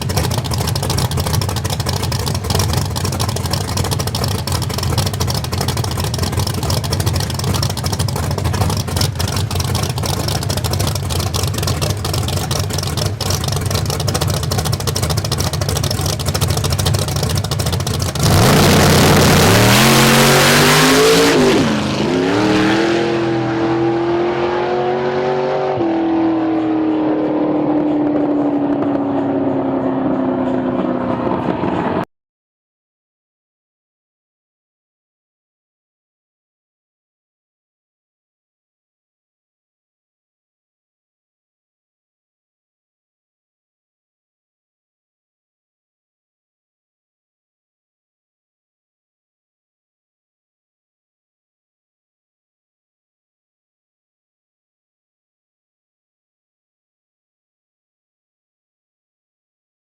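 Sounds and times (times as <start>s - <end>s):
drag car engine revving: 0.0s - 32.0s.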